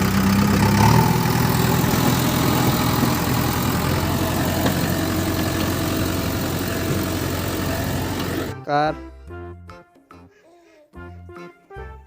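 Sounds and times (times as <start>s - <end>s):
vehicle engine idling: 0.0s - 8.5s.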